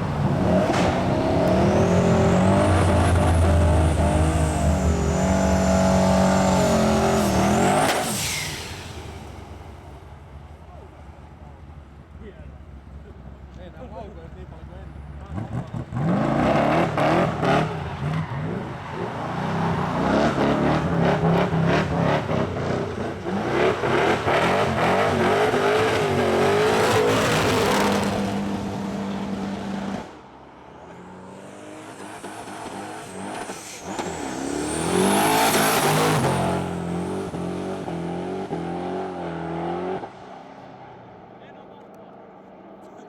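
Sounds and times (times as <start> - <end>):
car engine revving hard: 0.0 - 9.5, 15.2 - 30.2, 31.0 - 40.2
high whistle: 1.3 - 9.2.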